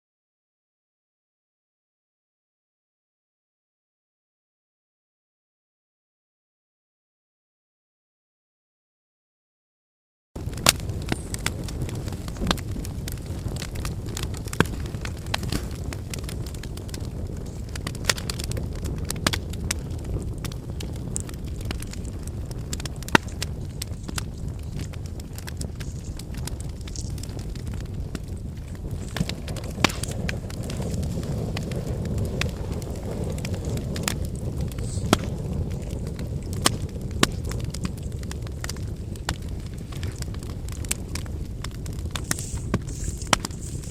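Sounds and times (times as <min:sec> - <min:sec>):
steady low rumble: 0:10.4 - 0:43.9
wood fire crackling and popping: 0:10.4 - 0:43.9.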